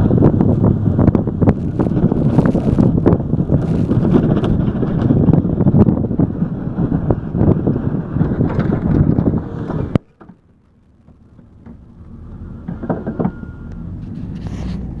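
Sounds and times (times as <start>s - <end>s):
wind buffeting microphone: 0.0s - 15.0s
knocks: 12.6s - 13.4s.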